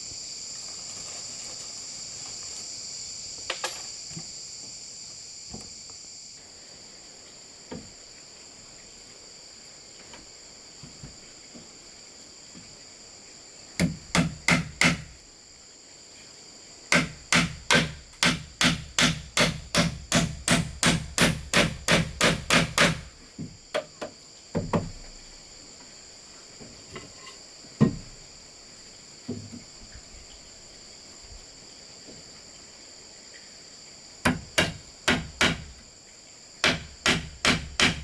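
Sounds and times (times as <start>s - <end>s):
hand tool striking bamboo: 13.8s - 15.1s, 16.9s - 23.1s, 34.2s - 35.8s, 36.6s - 38.0s.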